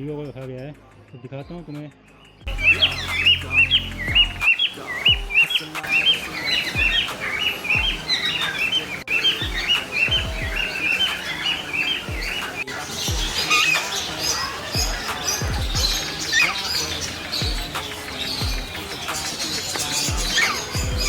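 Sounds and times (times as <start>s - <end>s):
caged birds chirping: 1.5s - 21.0s
hip-hop bass notes: 2.5s - 4.5s, 14.8s - 16.1s.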